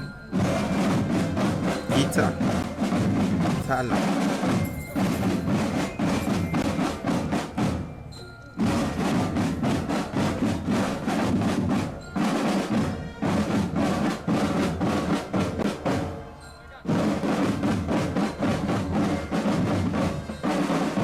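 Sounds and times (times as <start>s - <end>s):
snare drum rolls: 0.4s - 7.8s.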